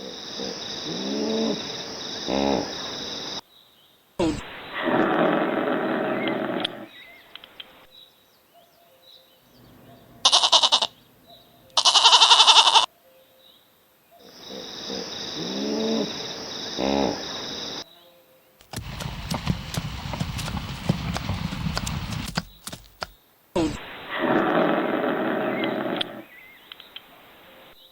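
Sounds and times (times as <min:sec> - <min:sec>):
rough noisy animal call: 0:04.2 - 0:07.8, 0:09.6 - 0:12.9, 0:14.3 - 0:17.8, 0:18.6 - 0:27.3
loud pitched animal calls: 0:09.7 - 0:11.0, 0:11.8 - 0:12.9.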